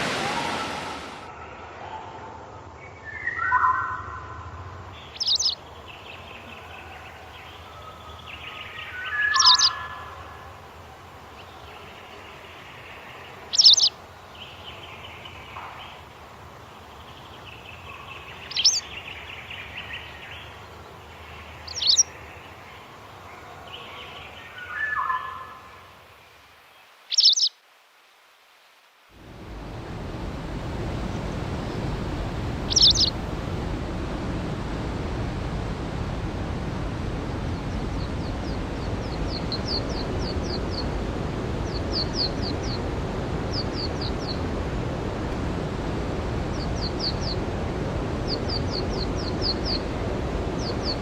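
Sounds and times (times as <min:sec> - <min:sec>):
faint bird chorus: 0:01.3 - 0:27.6, 0:32.6 - 0:33.2, 0:37.2 - 0:44.5, 0:46.5 - 0:47.5, 0:48.2 - 0:51.0
lower bird calls: 0:02.8 - 0:26.0, 0:27.1 - 0:27.6, 0:32.6 - 0:33.2, 0:37.3 - 0:41.0, 0:41.6 - 0:44.5, 0:46.5 - 0:47.5, 0:48.2 - 0:51.0.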